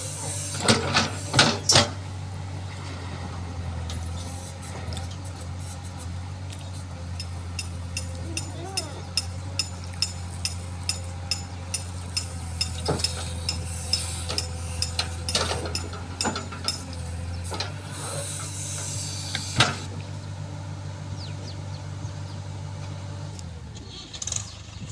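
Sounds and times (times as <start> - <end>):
hiss: 0.0 - 1.6, 12.9 - 15.0, 17.5 - 19.9
diesel engine running: 0.0 - 24.9.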